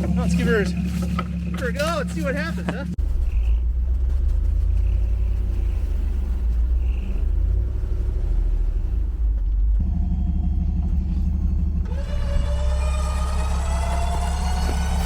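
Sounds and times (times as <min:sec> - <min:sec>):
vehicle engine rumbling: 0:00.0 - 0:15.0
winch motor whine: 0:00.0 - 0:15.0.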